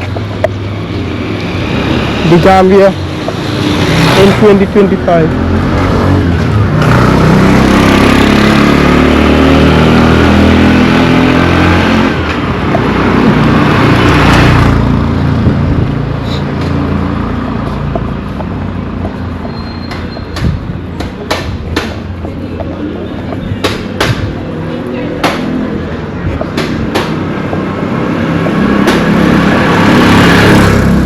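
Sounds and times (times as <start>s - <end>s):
vehicles passing on a road: 0.0s - 31.0s
sharp knocks: 19.9s - 22.3s, 23.3s - 24.4s, 25.2s - 25.6s, 26.4s - 27.7s, 28.3s - 29.4s.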